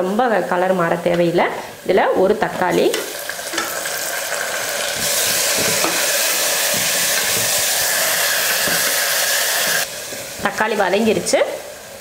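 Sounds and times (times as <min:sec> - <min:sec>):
vegetables sizzling in oil: 0:00.0 - 0:12.0
spatula knocking: 0:05.0 - 0:06.1.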